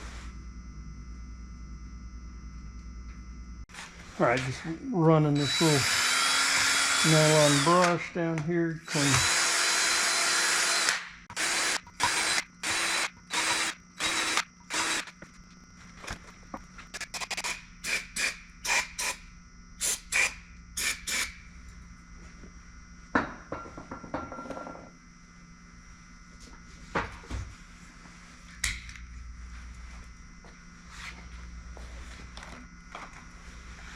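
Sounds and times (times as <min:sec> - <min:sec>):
electric drill spinning brush: 0:05.3 - 0:08.0, 0:08.8 - 0:15.3.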